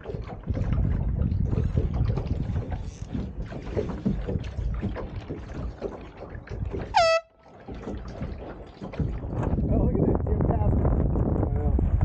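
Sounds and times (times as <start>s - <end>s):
wind buffeting microphone: 0.0s - 7.0s, 7.6s - 12.0s
water rushing past hull: 0.0s - 12.0s
loud horn blast: 7.0s - 7.4s.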